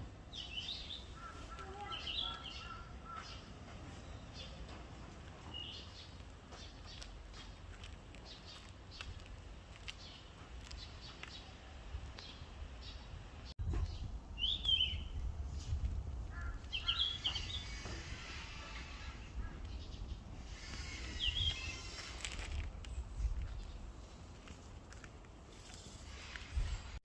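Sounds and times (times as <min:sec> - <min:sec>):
bird high chirps: 0:00.4 - 0:03.5, 0:14.0 - 0:15.2.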